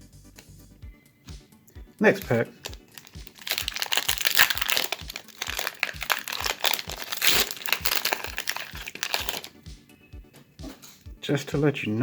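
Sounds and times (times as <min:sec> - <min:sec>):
foil pack torn open: 0:02.6 - 0:09.5
foil wrapper crinkling: 0:02.6 - 0:09.5.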